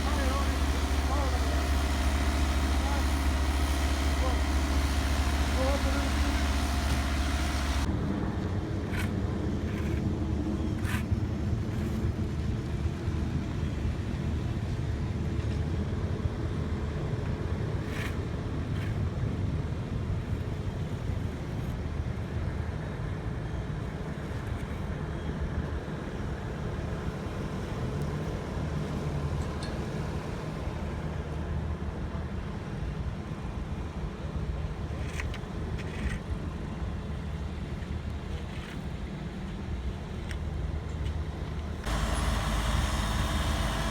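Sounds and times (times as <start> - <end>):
paving machinery engines rumbling: 0.0 - 19.4, 28.3 - 43.9.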